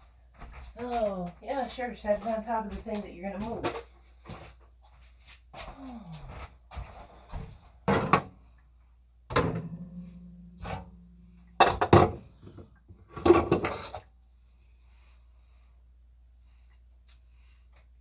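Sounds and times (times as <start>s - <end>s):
low steady hum: 8.0s - 15.7s
items knocking on counter: 11.6s - 12.7s.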